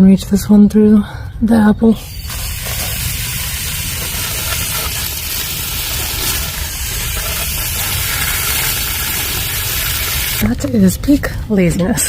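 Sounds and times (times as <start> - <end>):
garden hose spraying water: 2.0 - 10.5.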